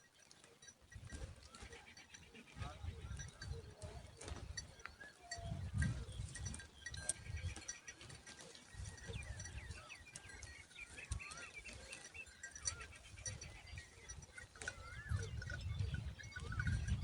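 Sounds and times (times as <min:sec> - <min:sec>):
small birds chirping: 0:00.0 - 0:17.0
wavering whistled bird notes: 0:01.5 - 0:07.9, 0:08.7 - 0:17.0.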